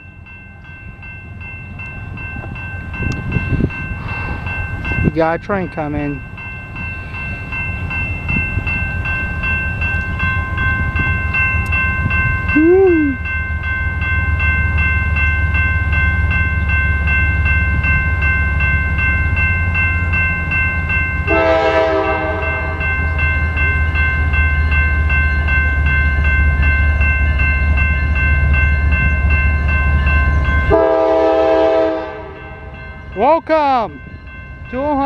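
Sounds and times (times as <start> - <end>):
crossing bells ringing: 0.0 - 35.0
freight train rumble: 0.0 - 35.0
locomotive horn: 21.3 - 22.8, 30.7 - 32.4.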